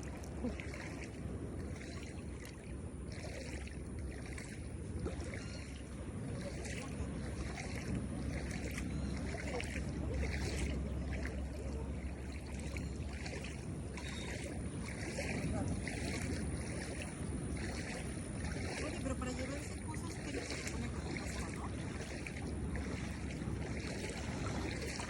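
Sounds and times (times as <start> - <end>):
water rushing: 0.0 - 25.0
wind on microphone: 0.0 - 25.0.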